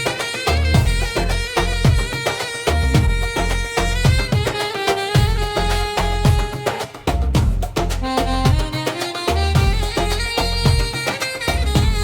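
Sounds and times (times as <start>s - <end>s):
deep pitch-dropping drum hits: 0.7s - 2.2s, 2.8s - 4.5s, 5.2s - 8.8s, 9.6s - 10.9s, 11.6s - 12.0s.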